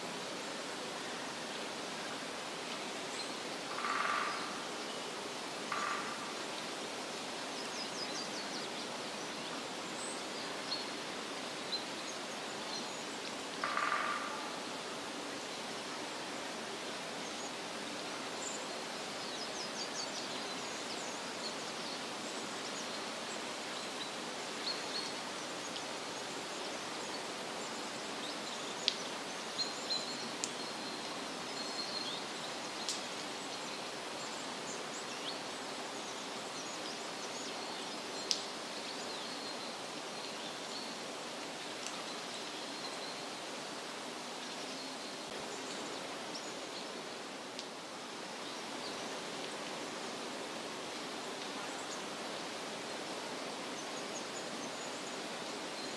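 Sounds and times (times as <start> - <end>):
steady rushing hiss: 0.0 - 55.9.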